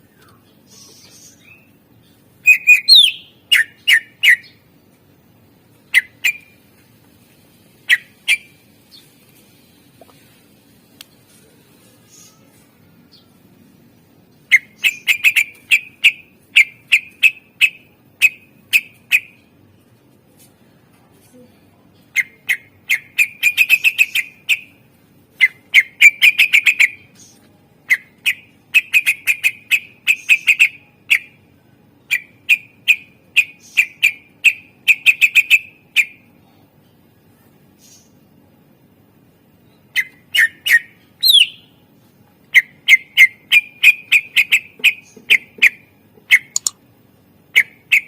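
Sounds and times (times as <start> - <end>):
bird singing sharp repeated notes: 0.2 - 4.7, 14.4 - 19.4, 27.9 - 31.4, 39.9 - 41.8, 42.5 - 46.8.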